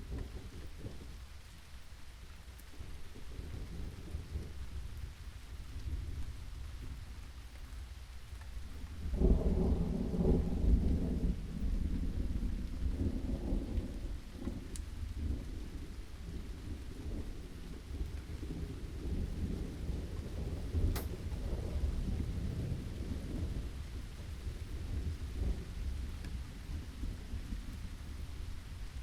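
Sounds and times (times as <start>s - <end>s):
steady rain: 0.0s - 29.0s
thunder rumbling: 8.8s - 29.0s.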